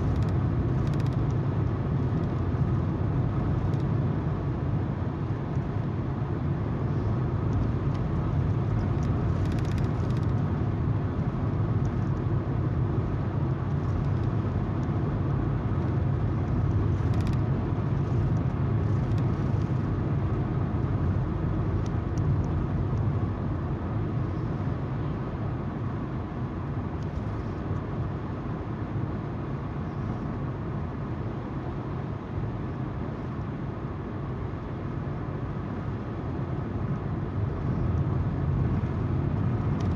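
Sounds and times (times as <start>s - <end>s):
car engine hum: 30.0s - 39.9s.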